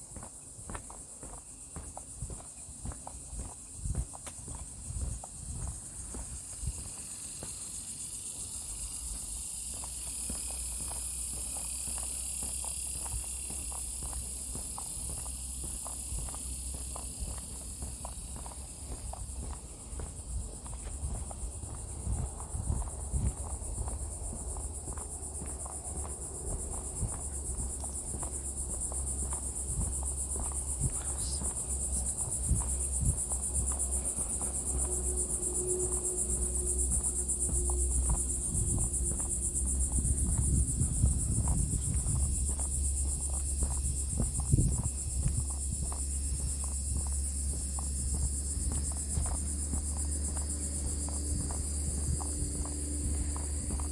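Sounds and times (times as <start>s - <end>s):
insects chorus: 0.0s - 53.9s
low rumble: 26.2s - 47.0s.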